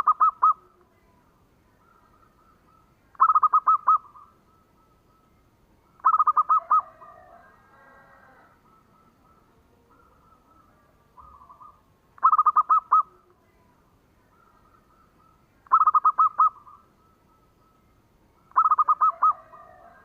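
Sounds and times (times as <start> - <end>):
dove cooing: 0.0 - 0.8, 1.8 - 5.2, 5.9 - 13.4, 14.2 - 17.8, 18.4 - 20.0
faint calls of other doves: 0.0 - 20.0.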